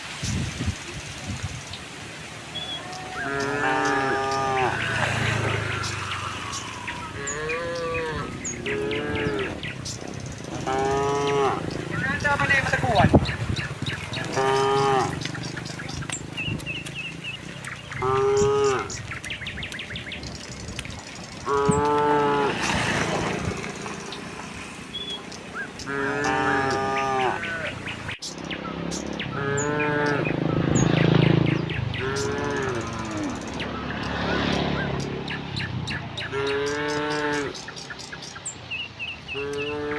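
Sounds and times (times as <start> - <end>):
small birds chirping: 0.0 - 39.9
cattle mooing: 2.7 - 16.2, 17.1 - 19.1, 21.4 - 24.1, 25.6 - 28.0, 29.4 - 30.3, 32.0 - 33.5, 36.3 - 37.6, 39.3 - 39.9.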